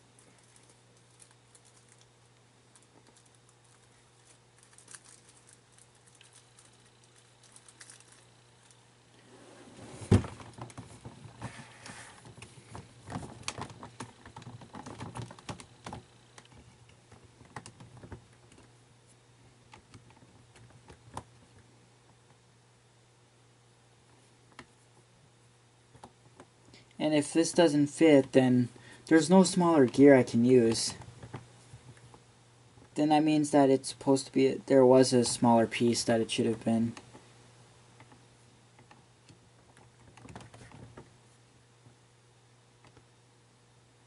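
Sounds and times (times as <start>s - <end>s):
small parts clicking: 2.7s - 8.8s.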